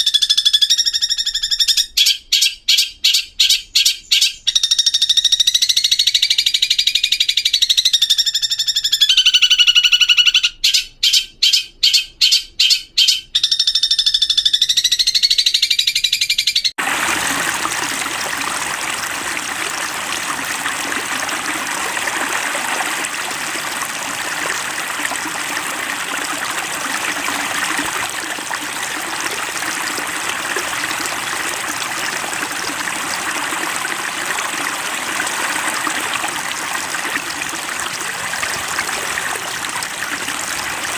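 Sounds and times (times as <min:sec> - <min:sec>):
running stream: 0:16.8 - 0:40.9.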